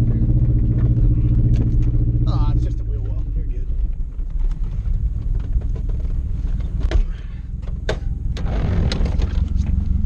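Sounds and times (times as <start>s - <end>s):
car engine rumbling: 0.0s - 10.0s
sharp knocks and rattles: 3.8s - 9.9s.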